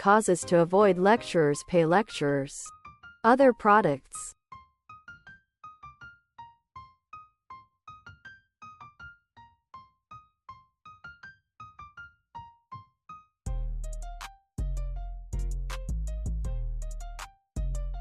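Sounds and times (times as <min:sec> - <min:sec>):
light piano melody: 0:04.5 - 0:13.4.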